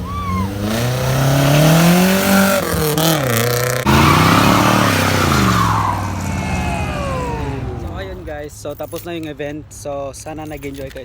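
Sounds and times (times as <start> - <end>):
car engine revving hard: 0.0 - 8.3.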